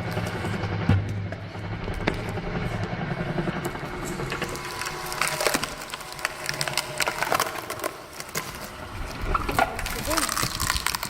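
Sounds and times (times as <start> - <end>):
log cracking and splintering: 3.6 - 11.0
screw log splitter boring: 3.9 - 11.0.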